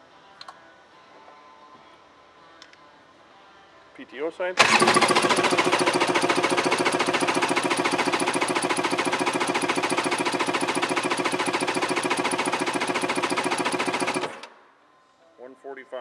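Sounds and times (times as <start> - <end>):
engine cranking on electric starter: 4.6 - 14.5.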